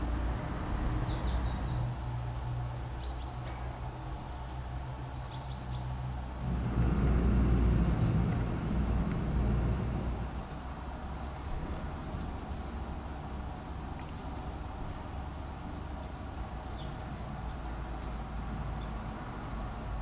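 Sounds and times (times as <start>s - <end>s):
road traffic rumble: 0.0s - 20.0s
faint high bird calls: 5.2s - 6.8s
vehicle passing: 6.3s - 12.1s.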